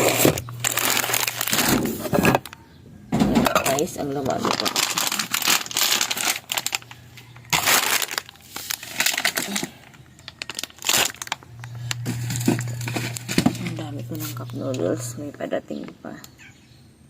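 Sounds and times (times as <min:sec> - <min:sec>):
packaging crinkling and rustling: 0:00.0 - 0:02.6, 0:03.5 - 0:14.6
low steady hum: 0:00.0 - 0:17.0.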